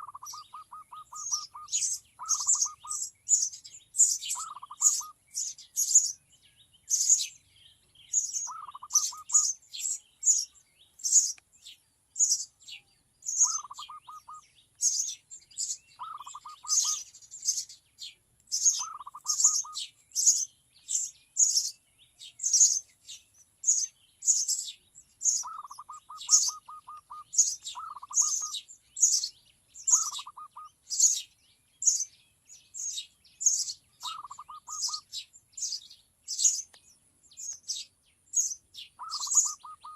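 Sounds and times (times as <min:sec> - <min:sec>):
bird rattling call: 0:00.0 - 0:05.1, 0:16.0 - 0:17.6, 0:18.6 - 0:20.4, 0:23.7 - 0:29.3, 0:29.9 - 0:31.2, 0:33.5 - 0:35.1, 0:39.0 - 0:39.9
young sparrow chirping: 0:00.0 - 0:39.9.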